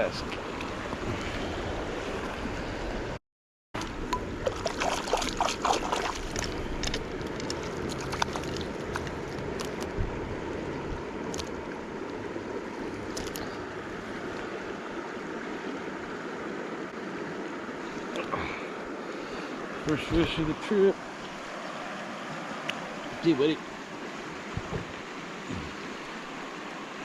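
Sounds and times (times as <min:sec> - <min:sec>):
river rushing: 0:03.8 - 0:27.0.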